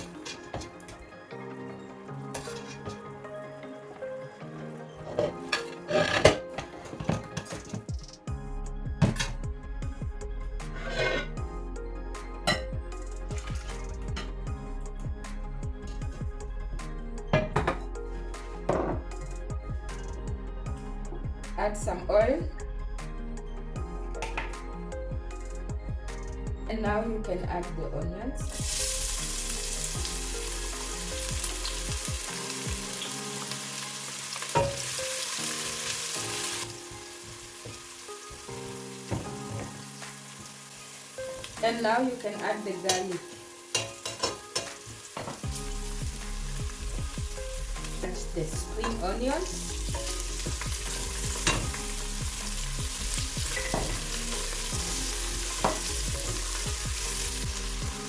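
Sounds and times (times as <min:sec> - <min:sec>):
onions sizzling in oil: 0:28.5 - 0:58.0
utensil clinking against pan: 0:43.7 - 0:45.4.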